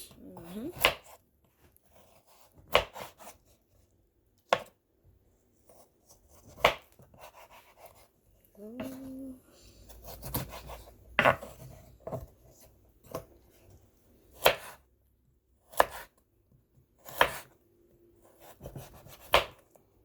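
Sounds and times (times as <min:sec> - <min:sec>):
knife chopping on cutting board: 0:00.7 - 0:01.2, 0:02.0 - 0:03.4, 0:04.5 - 0:04.8, 0:06.3 - 0:08.0, 0:10.0 - 0:13.3, 0:14.4 - 0:14.8, 0:15.7 - 0:16.2, 0:17.0 - 0:17.6, 0:18.4 - 0:19.7.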